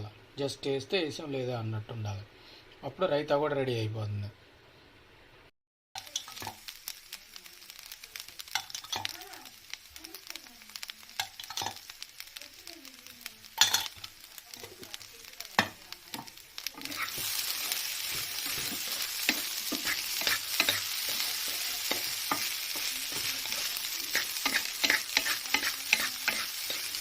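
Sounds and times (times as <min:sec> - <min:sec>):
rice sizzling in a hot pan: 0:06.0 - 0:27.0
spatula scraping a pan: 0:15.5 - 0:27.0.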